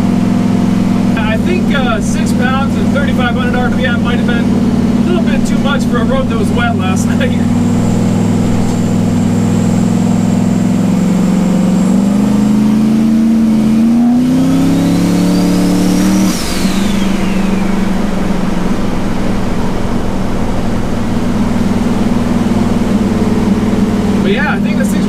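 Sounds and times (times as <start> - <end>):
truck engine revving: 0.0 - 25.0
turbo whistle: 13.8 - 18.7.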